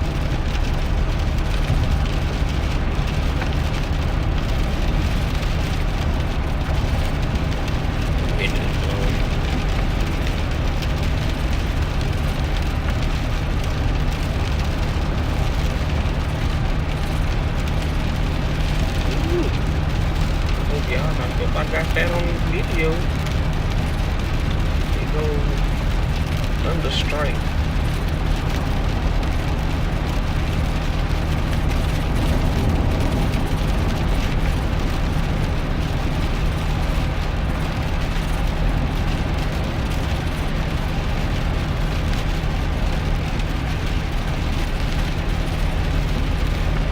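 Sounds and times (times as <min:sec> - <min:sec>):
rain and wet tyres hissing: 0:00.0 - 0:46.9
road and drivetrain rumble: 0:00.0 - 0:46.9.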